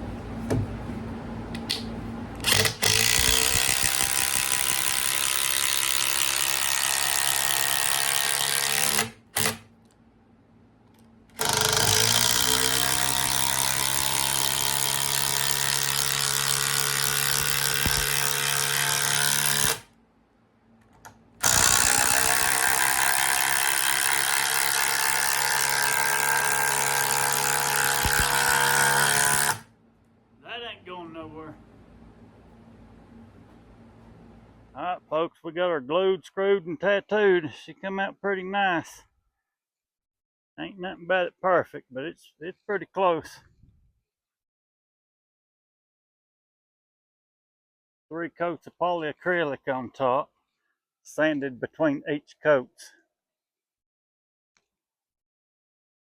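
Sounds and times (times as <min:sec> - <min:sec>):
power driver driving screws into wood: 0:02.4 - 0:09.7, 0:11.3 - 0:19.9, 0:21.4 - 0:29.7.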